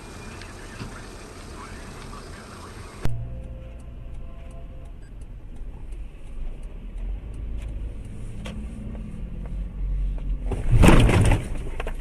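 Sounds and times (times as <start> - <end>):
car engine rumble: 0.0 - 12.0.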